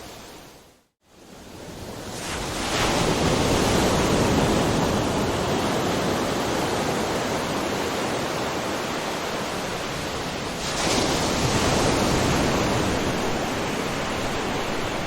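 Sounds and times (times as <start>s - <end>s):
ocean wave breaking: 2.1s - 15.0s.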